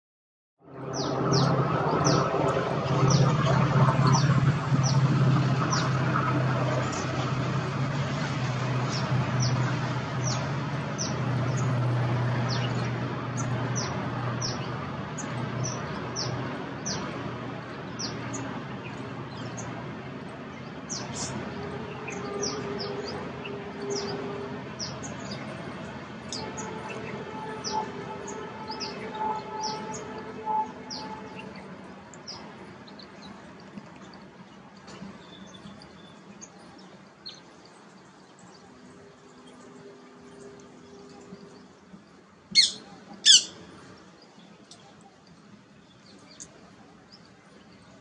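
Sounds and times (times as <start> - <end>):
outdoor background noise: 0.6 - 48.0
low hum: 0.7 - 19.8
small birds chirping: 35.2 - 48.0.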